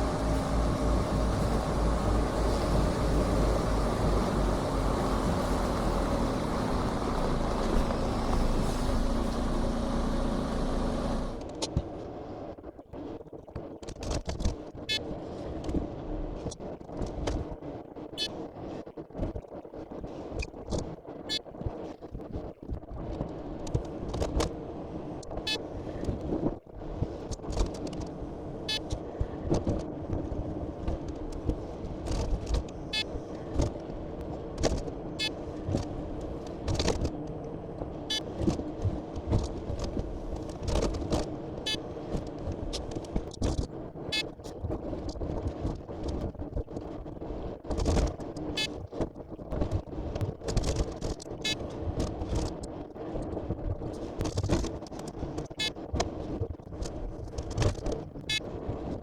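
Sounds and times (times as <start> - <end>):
truck engine running: 0.0 - 11.5.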